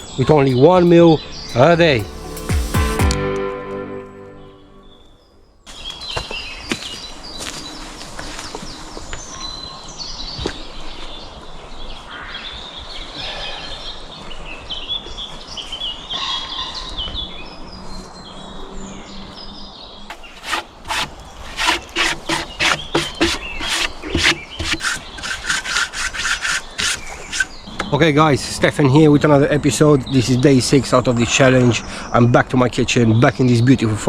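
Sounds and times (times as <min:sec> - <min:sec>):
small birds chirping: 0:00.0 - 0:02.0
rhythmic scraping strokes: 0:00.0 - 0:03.8, 0:20.1 - 0:27.6
forest background: 0:00.0 - 0:34.0.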